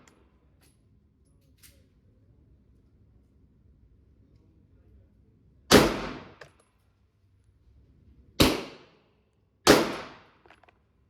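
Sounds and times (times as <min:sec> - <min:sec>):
pistol shots with echo: 0:05.7 - 0:06.4, 0:08.4 - 0:09.0, 0:09.7 - 0:10.4.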